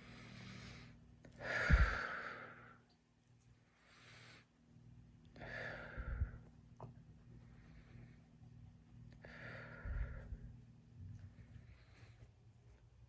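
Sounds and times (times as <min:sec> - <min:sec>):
man breathing deeply: 0:00.0 - 0:02.6, 0:05.4 - 0:06.5, 0:09.2 - 0:10.5.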